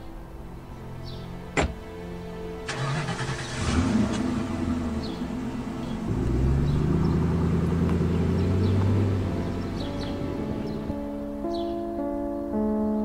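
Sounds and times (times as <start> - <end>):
car engine accelerating: 2.6 - 11.4.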